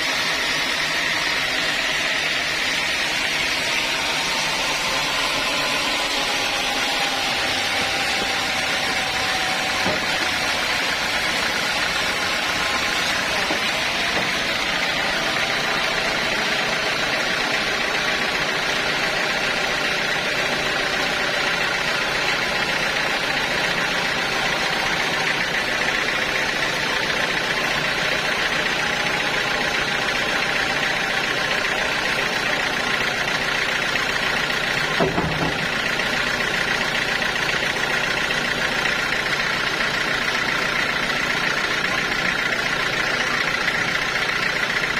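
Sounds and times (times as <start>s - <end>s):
sawmill saw cutting log: 0.0s - 44.9s.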